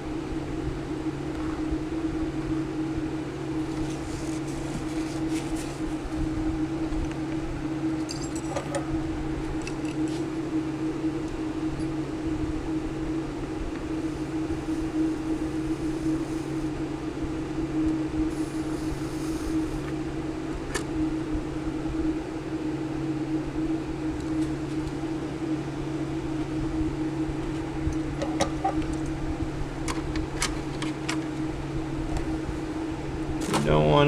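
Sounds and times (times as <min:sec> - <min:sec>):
electric motor hum: 0:08.7 - 0:34.0.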